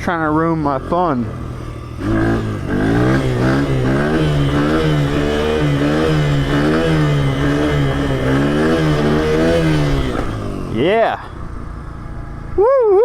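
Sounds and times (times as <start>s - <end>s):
small motorcycle engine revving: 0.0s - 13.0s.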